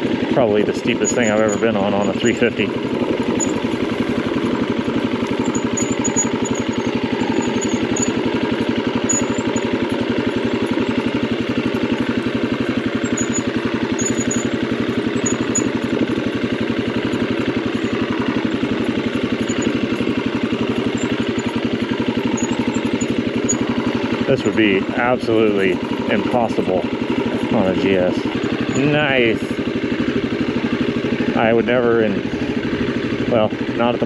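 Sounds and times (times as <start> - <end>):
dirt bike engine running: 0.0 - 34.0.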